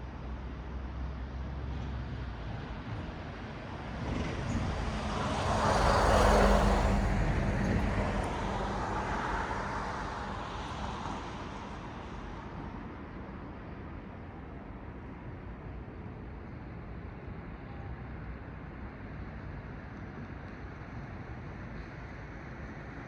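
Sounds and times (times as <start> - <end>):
car passing by: 3.8 - 12.6.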